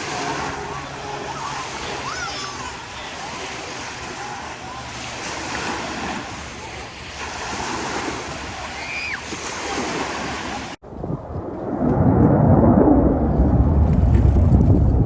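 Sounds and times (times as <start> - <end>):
lakeshore waves: 0.0 - 10.8
wind: 0.0 - 15.0
loud low rumble: 10.8 - 15.0.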